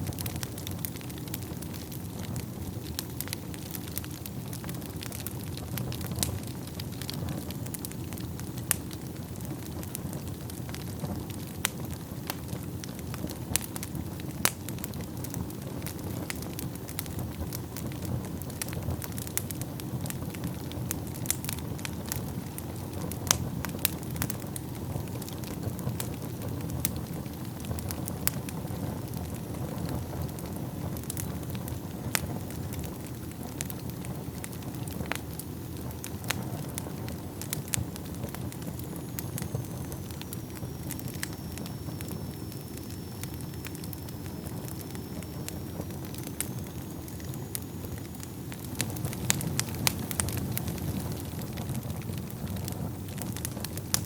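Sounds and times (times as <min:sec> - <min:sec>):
flames rushing: 0:00.0 - 0:54.0
wood crackling and popping: 0:00.0 - 0:54.0
faint high whistle: 0:38.6 - 0:48.7.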